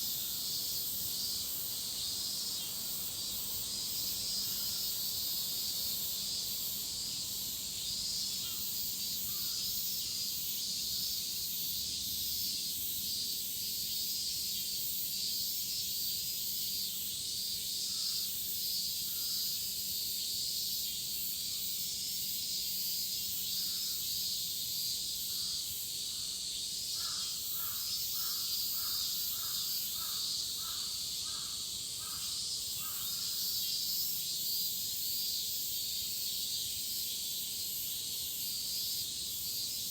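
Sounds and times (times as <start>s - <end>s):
cicadas shrilling: 0.0s - 39.9s
crows cawing: 27.0s - 33.3s.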